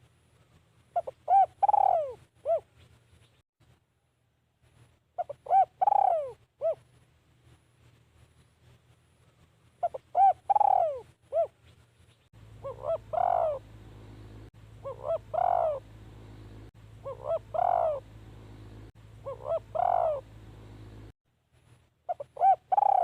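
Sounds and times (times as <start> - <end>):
dove cooing: 1.0 - 2.7, 5.2 - 6.9, 9.8 - 11.6, 12.6 - 21.0, 22.1 - 23.0
steady low hum: 12.4 - 22.0.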